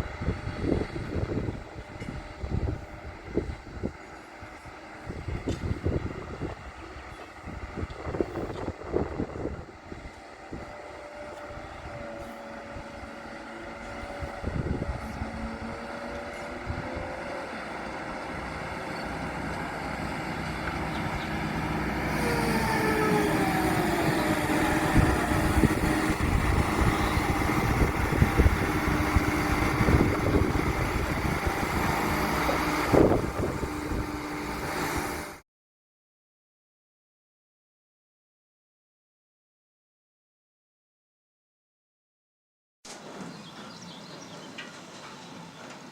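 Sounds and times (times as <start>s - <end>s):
heavy diesel machinery running: 0.0s - 35.4s
squealing tones sliding downward: 20.8s - 35.3s.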